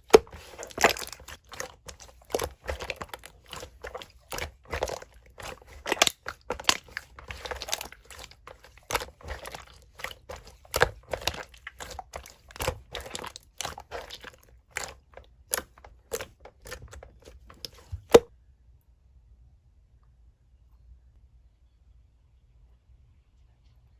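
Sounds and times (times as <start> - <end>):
slime squishing with sticky pops: 0.0 - 18.3.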